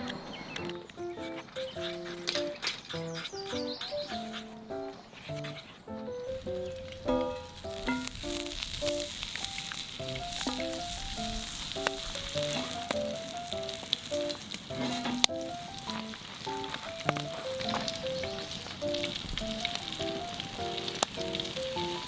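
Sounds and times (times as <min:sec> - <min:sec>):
plucked background melody: 0:00.0 - 0:22.0
food sizzling in a pan: 0:06.4 - 0:22.0.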